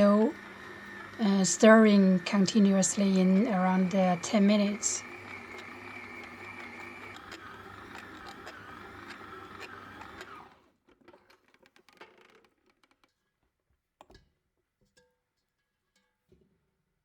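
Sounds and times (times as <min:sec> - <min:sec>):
electric mixer kneading dough: 0:00.0 - 0:12.9
faint clicks and knocks: 0:07.1 - 0:16.5.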